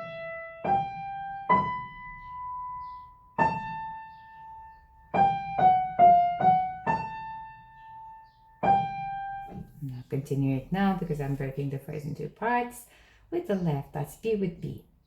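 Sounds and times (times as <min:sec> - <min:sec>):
slow piano melody: 0:00.0 - 0:09.8.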